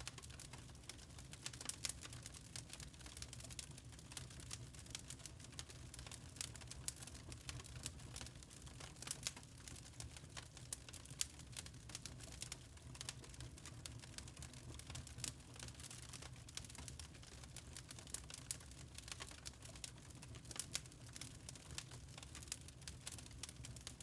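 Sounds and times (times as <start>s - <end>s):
charcoal crackling: 7.4s - 24.0s.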